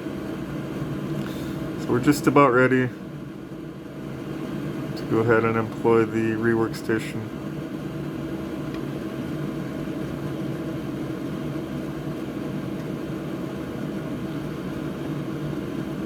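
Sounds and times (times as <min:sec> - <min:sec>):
hot-air station blowing: 0:00.0 - 0:16.0.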